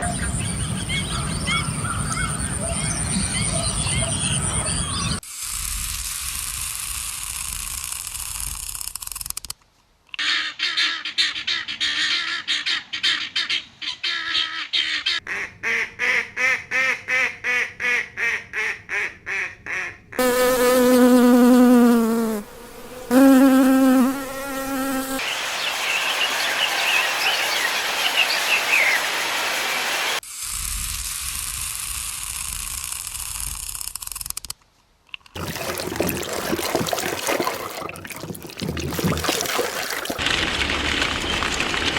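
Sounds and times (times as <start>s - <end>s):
insect buzzing: 20.2s - 25.2s.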